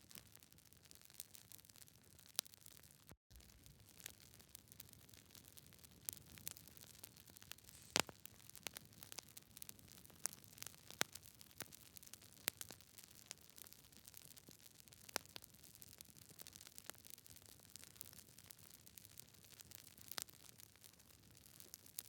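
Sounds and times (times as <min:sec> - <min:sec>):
wood fire crackling: 0:00.9 - 0:22.0
soft low hiss: 0:07.7 - 0:08.2.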